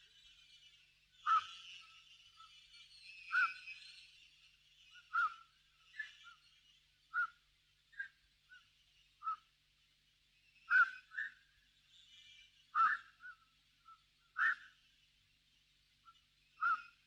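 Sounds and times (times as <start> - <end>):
faint high chirping: 0.0 - 9.5, 10.6 - 14.8, 16.0 - 17.0
sharp bird calls: 1.2 - 4.3, 4.9 - 6.4, 10.6 - 14.8, 16.6 - 17.0.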